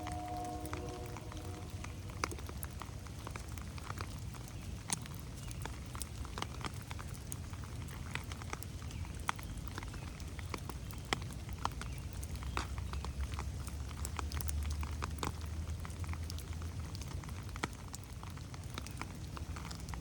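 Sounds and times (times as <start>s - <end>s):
low steady rumble: 0.0s - 3.8s
rain pattering on leaves: 0.0s - 20.0s.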